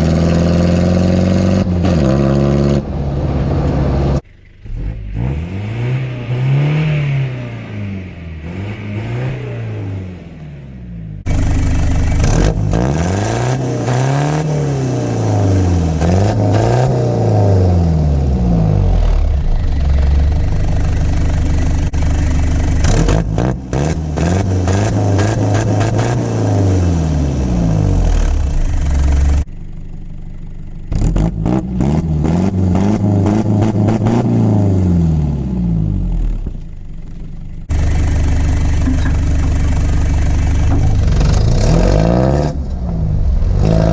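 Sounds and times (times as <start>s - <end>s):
diesel engine revving: 0.0s - 29.6s, 30.4s - 36.7s, 37.6s - 43.9s
engine clattering: 19.0s - 26.2s, 36.4s - 43.9s.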